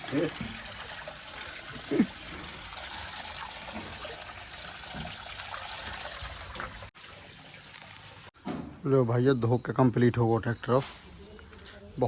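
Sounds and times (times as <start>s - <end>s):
water running and splashing: 0.0s - 8.4s.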